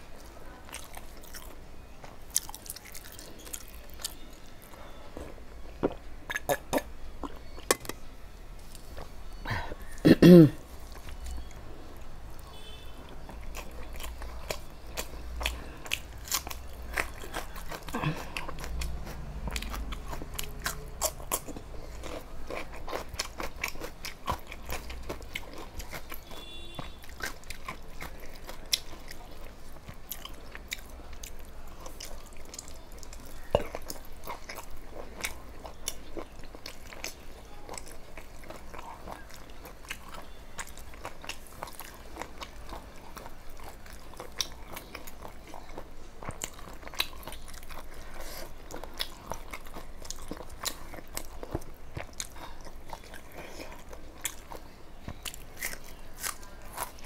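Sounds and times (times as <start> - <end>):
person chewing and crunching food: 0.0 - 10.0, 10.6 - 57.0.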